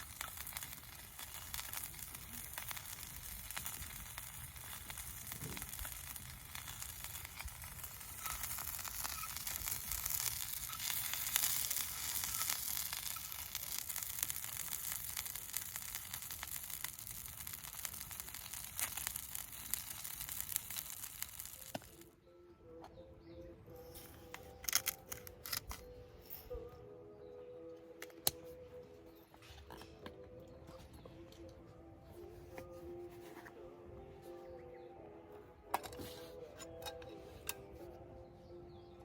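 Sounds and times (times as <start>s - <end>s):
sizzling crackle: 0.0s - 22.1s.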